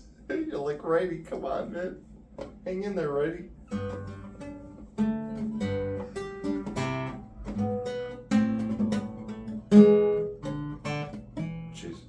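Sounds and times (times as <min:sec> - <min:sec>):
acoustic guitar strumming: 0:03.6 - 0:12.0.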